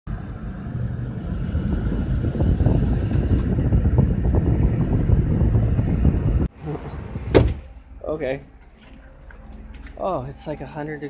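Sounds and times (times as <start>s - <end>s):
vehicle engine rumble: 0.1s - 11.0s
wind buffeting microphone: 0.4s - 7.5s.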